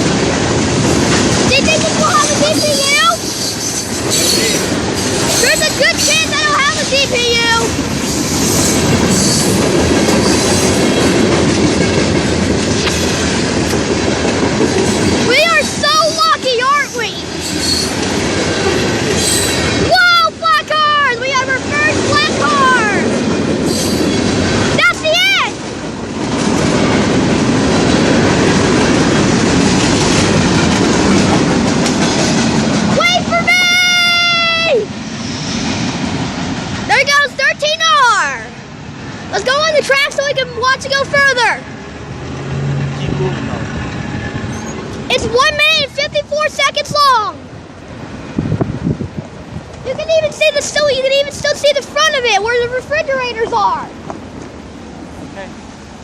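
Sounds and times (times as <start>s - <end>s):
train wheels rumbling on rails: 0.0s - 56.0s
high wheel squeal: 1.6s - 10.9s, 14.9s - 18.1s, 19.1s - 19.9s, 23.6s - 24.2s, 44.4s - 45.0s.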